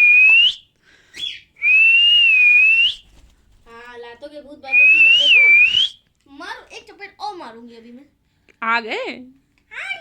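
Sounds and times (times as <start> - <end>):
cockatiel whistling: 0.0 - 3.0, 4.7 - 6.0.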